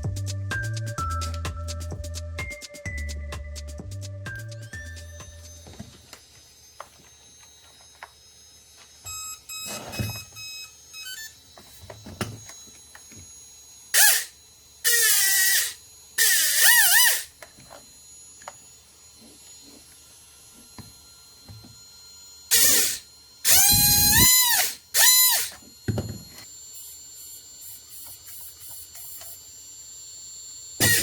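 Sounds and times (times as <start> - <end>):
electric motor whine: 4.3 - 31.0
short electronic tones: 9.1 - 12.2, 22.5 - 25.6.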